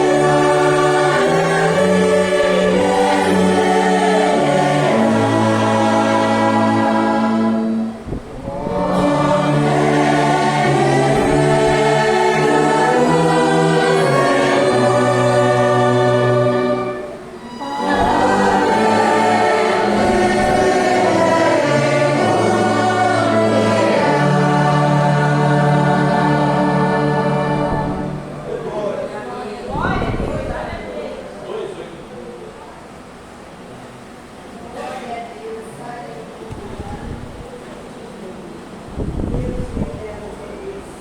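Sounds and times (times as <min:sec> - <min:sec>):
orchestra held chords: 0:00.0 - 0:29.3
congregation singing a hymn: 0:00.0 - 0:31.8.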